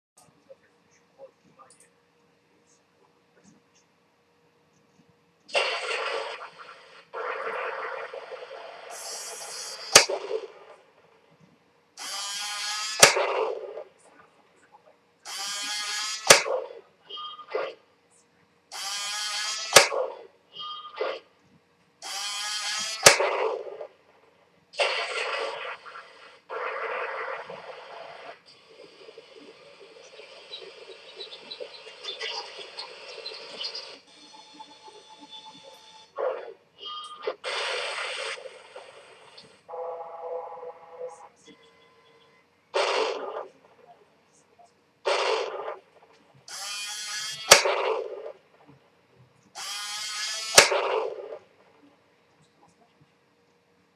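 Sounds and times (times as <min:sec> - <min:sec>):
toy tank cannon shot: 0:05.5 - 0:06.6, 0:07.2 - 0:10.6, 0:12.0 - 0:13.8, 0:15.3 - 0:16.8, 0:18.7 - 0:20.3, 0:22.0 - 0:23.9, 0:24.8 - 0:28.0, 0:42.8 - 0:43.5, 0:45.1 - 0:45.8, 0:46.5 - 0:48.4, 0:49.6 - 0:51.4
noisy blasts: 0:05.5 - 0:11.2, 0:24.7 - 0:36.6, 0:37.2 - 0:41.3, 0:42.7 - 0:43.8, 0:45.0 - 0:48.6, 0:49.6 - 0:51.8
toy tank buzzing: 0:12.0 - 0:13.8, 0:15.3 - 0:16.7, 0:18.7 - 0:20.8, 0:22.0 - 0:23.8, 0:46.5 - 0:48.3, 0:49.6 - 0:51.4
buzzing tone from small speaker: 0:34.0 - 0:36.2.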